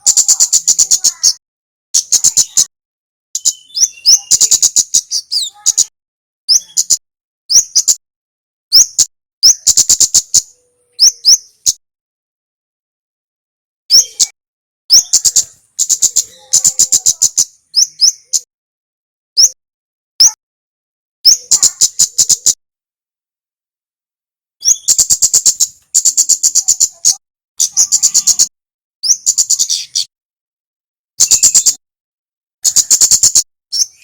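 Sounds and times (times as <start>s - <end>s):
bird whistle and ticking calls: 0.0s - 1.4s, 2.0s - 2.7s, 3.4s - 5.9s, 6.5s - 8.0s, 8.7s - 11.8s, 13.9s - 18.5s, 19.4s - 19.6s, 21.3s - 22.6s, 24.6s - 30.1s, 31.2s - 31.8s, 32.6s - 34.0s.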